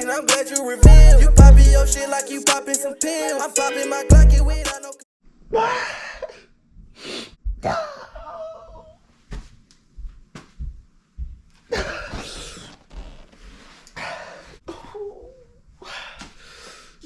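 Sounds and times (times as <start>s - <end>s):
person coughing: 11.7s - 12.6s.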